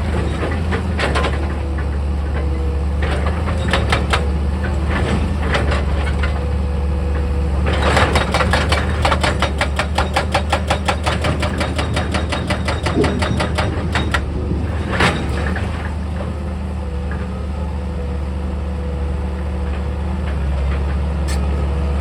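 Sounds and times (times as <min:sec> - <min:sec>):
excavator diesel engine running: 0:00.0 - 0:22.0
fast series of sharp knocks: 0:08.2 - 0:14.3.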